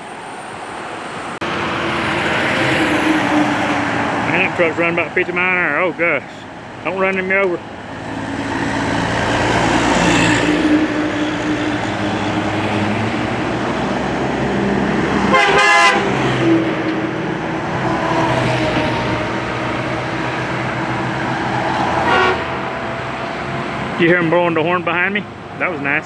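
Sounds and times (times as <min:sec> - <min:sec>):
heavy trucks passing: 0:00.0 - 0:26.0
vehicle horn blast: 0:15.3 - 0:16.2, 0:22.0 - 0:22.9.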